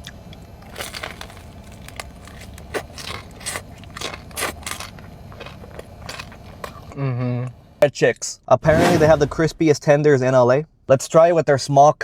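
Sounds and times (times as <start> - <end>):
chewing crispy food: 0.0 - 6.9.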